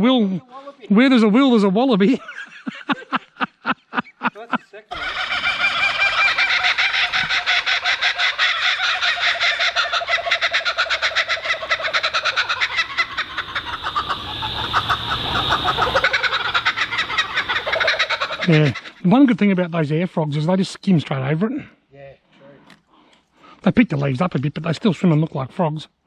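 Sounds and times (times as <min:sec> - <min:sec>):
birds calling in rhythmic chorus: 0:04.9 - 0:19.0.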